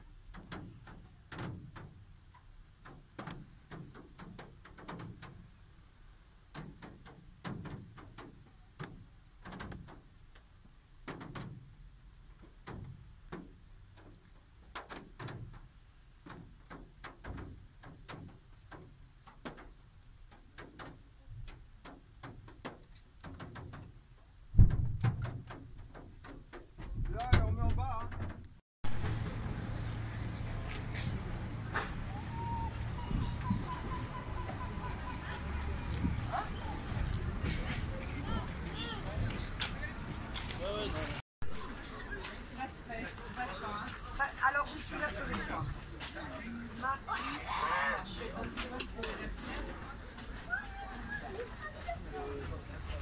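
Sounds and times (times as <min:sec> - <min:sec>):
low thump: 0:24.6 - 0:25.7.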